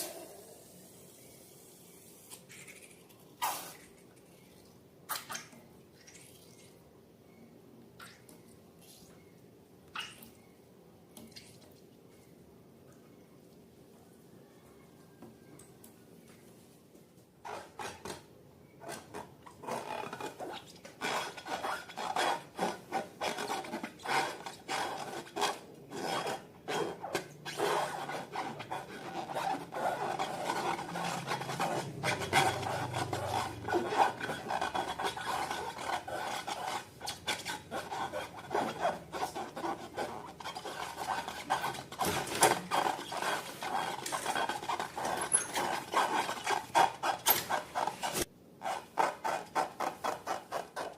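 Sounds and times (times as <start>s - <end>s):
slime scraping and rubbing: 18.8s - 50.9s.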